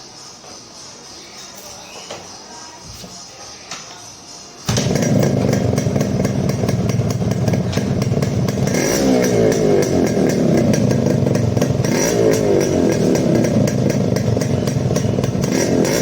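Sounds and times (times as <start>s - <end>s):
two-stroke motorcycle idling: 4.7s - 16.0s.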